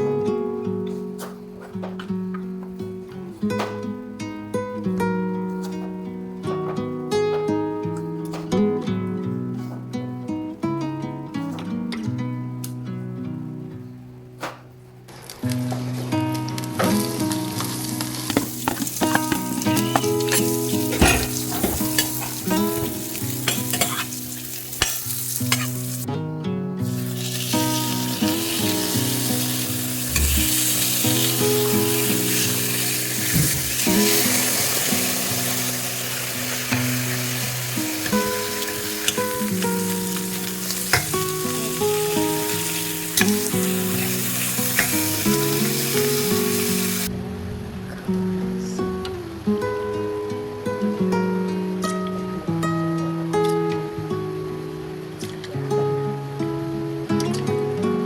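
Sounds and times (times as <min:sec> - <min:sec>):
food sizzling in a pan: 0:15.1 - 0:26.1, 0:26.8 - 0:47.1
soft background music: 0:15.7 - 0:26.0, 0:26.8 - 0:49.9
utensil scraping a pan: 0:18.3 - 0:26.0.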